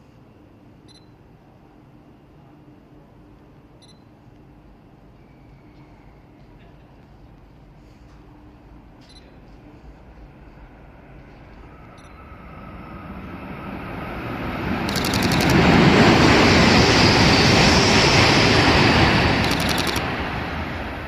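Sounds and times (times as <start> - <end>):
high-speed train passing: 0.0 - 21.0
camera shutter clicks: 14.9 - 15.6, 19.4 - 20.0.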